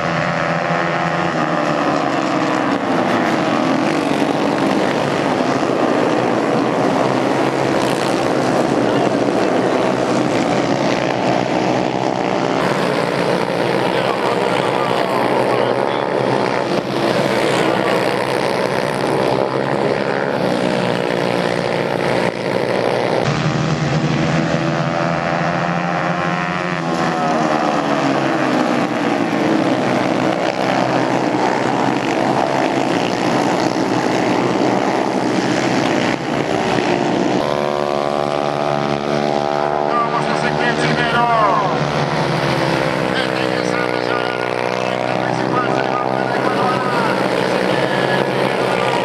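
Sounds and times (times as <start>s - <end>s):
racing motorcycle engines: 0.0s - 49.0s.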